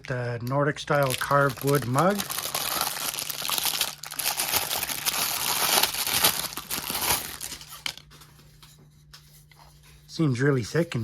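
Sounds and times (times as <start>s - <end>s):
packaging crinkling and tearing: 0.9s - 8.1s.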